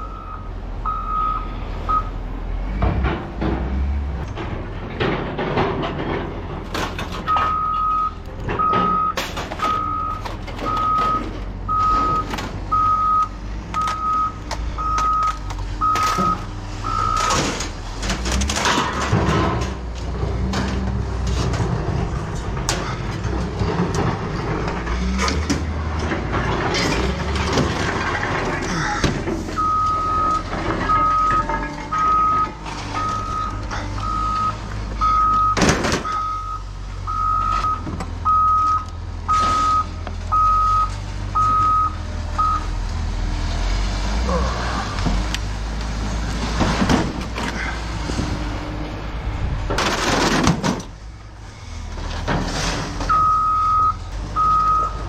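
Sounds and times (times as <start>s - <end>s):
reversing alarm beeping: 0.0s - 2.2s, 7.3s - 17.6s, 29.5s - 42.7s, 53.1s - 55.0s
diesel engine running and revving: 0.0s - 55.0s
metal clanks: 2.8s - 12.7s, 13.8s - 34.2s.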